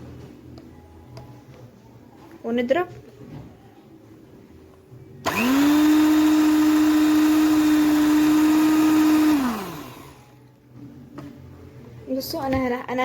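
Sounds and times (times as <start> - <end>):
electric hand mixer whine: 5.3 - 10.3.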